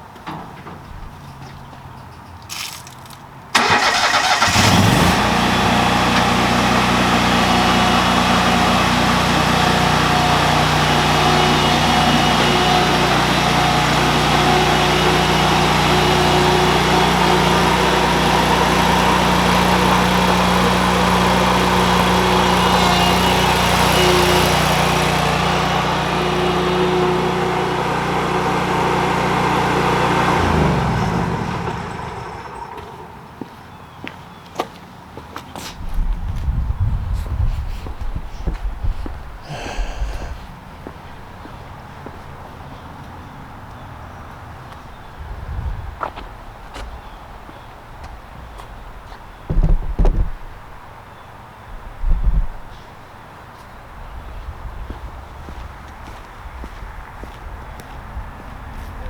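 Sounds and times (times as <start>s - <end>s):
lawn mower engine running: 3.5s - 33.5s.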